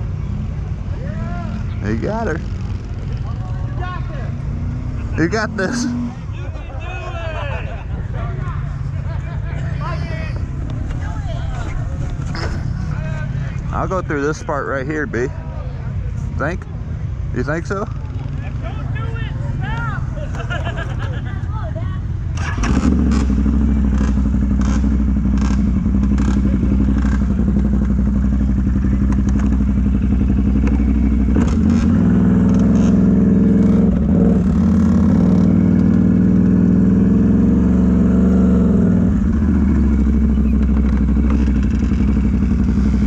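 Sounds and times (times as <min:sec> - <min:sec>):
truck engine revving: 0:22.2 - 0:43.0.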